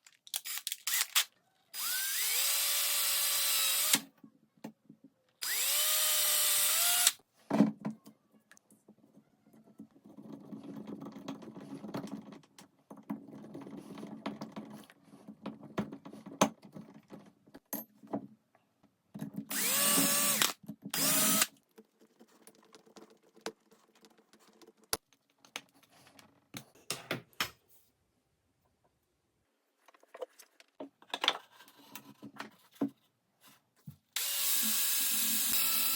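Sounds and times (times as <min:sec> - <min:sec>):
power drill whining: 0:00.4 - 0:04.0, 0:05.4 - 0:07.2, 0:19.5 - 0:21.5, 0:34.2 - 0:35.9.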